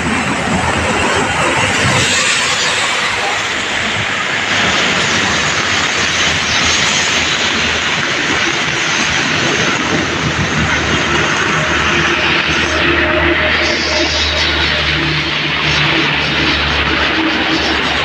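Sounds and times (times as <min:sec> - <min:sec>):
rain: 0:00.0 - 0:18.0
sea surf: 0:00.0 - 0:18.0.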